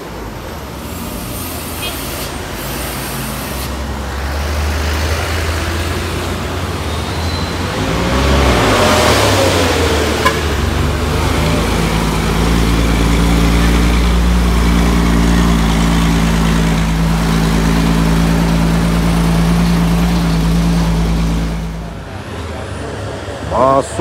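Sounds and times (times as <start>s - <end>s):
diesel truck engine droning: 0.0s - 24.0s.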